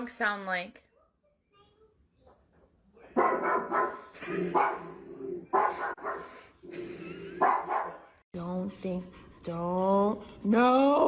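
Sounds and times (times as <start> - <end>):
dog barking: 3.1 - 6.4, 7.4 - 8.1.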